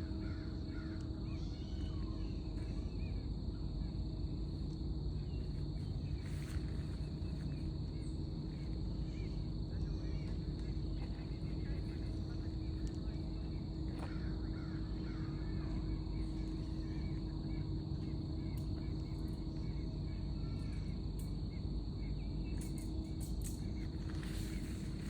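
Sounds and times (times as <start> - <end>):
faint bird calls: 0.0 - 3.1, 5.2 - 17.6
low outdoor rumble: 0.0 - 25.0.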